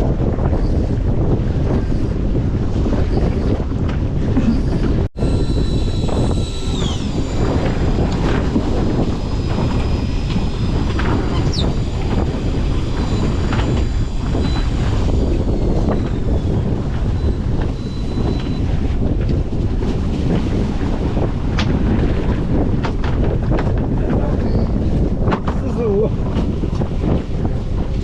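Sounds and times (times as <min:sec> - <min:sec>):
boat engine running: 0:00.0 - 0:28.0
wind buffeting microphone: 0:00.0 - 0:28.0
faint high whine: 0:05.2 - 0:18.7.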